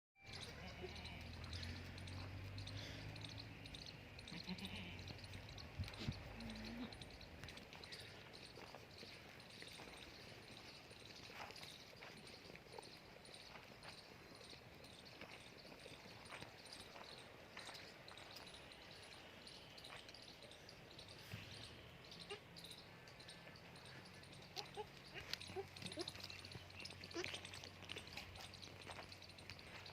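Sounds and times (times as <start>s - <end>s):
goats bleating faintly: 4.3s - 5.2s, 27.0s - 27.7s.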